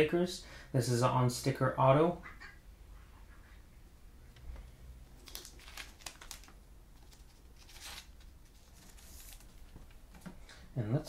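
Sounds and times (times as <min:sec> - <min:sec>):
plastic card sleeves rustling: 0:05.1 - 0:10.0.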